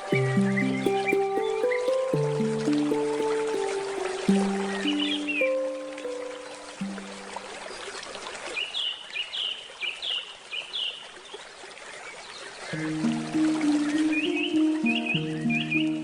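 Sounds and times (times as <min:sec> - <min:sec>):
small bird chirping: 0:00.0 - 0:07.5
handpan notes ringing: 0:00.0 - 0:07.9, 0:12.8 - 0:16.0
stream flowing: 0:00.0 - 0:16.0.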